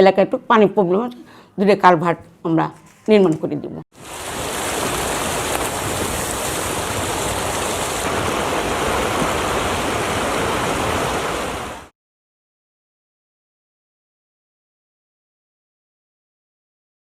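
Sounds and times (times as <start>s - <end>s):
flowing water rushing: 4.0s - 11.9s.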